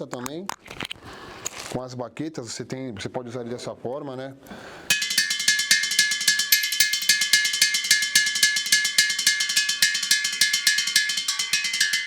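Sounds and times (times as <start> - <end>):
drumsticks hitting metal cylinder: 4.9 - 12.0.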